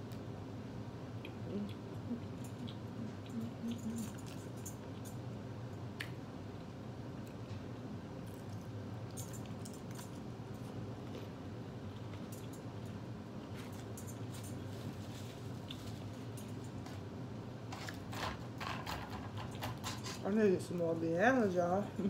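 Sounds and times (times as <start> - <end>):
wet chewing: 1.2 - 5.1.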